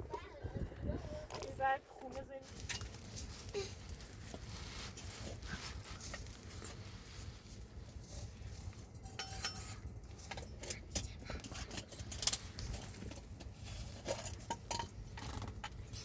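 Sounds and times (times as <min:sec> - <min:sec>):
dishes and utensils clinking: 0:09.0 - 0:13.2, 0:14.0 - 0:16.0.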